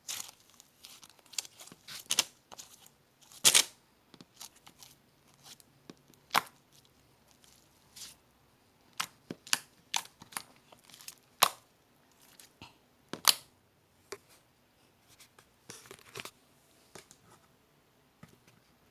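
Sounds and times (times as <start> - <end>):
crackles and crunches: 0.0 - 8.2, 9.0 - 12.6.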